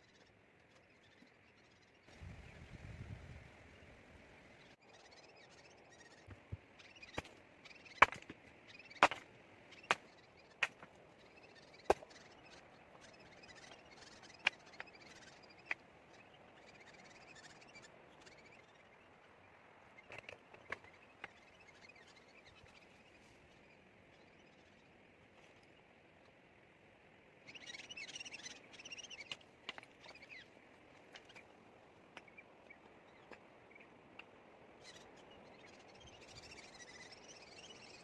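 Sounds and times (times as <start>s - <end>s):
birds chirping: 0.0s - 26.3s, 27.3s - 38.0s
wood chopping knocks: 9.0s - 9.2s.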